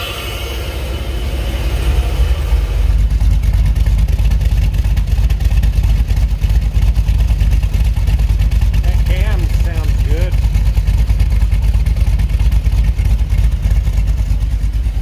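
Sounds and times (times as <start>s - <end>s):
intake sucking air: 0.0s - 3.6s
car engine running: 0.0s - 15.0s.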